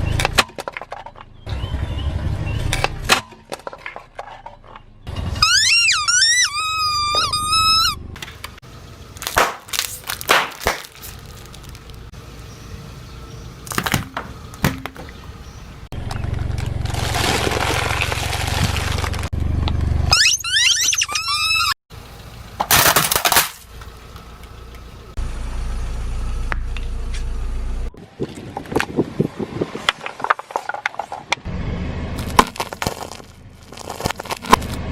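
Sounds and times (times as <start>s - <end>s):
low engine rumble: 0.0s - 20.2s, 21.9s - 22.7s, 23.5s - 30.3s, 30.9s - 34.9s
objects crunching under tyre: 2.5s - 5.6s, 8.2s - 20.0s, 22.5s - 24.9s, 28.1s - 31.5s, 32.2s - 34.9s
high wavering squeal: 5.3s - 8.2s, 20.1s - 21.8s
sharp cracks and snaps: 9.2s - 12.0s.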